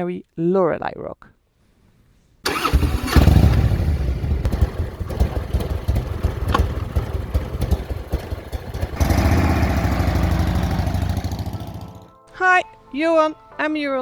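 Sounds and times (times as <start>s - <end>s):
motorcycle engine rumbling: 2.5s - 12.1s.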